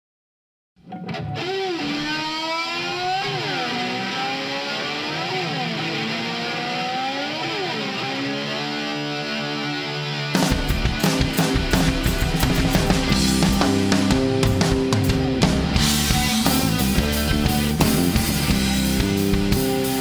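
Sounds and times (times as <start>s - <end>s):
distorted electric slide guitar: 0.8s - 20.0s
drums and band playing: 10.3s - 20.0s.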